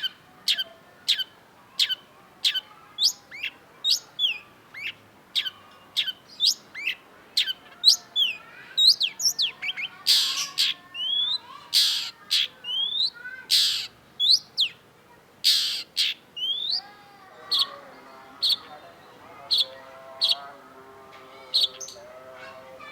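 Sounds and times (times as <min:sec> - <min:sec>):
bird chirping: 0:00.0 - 0:14.8, 0:15.5 - 0:22.9
harsh rasping bird notes: 0:11.8 - 0:14.0, 0:15.5 - 0:16.6.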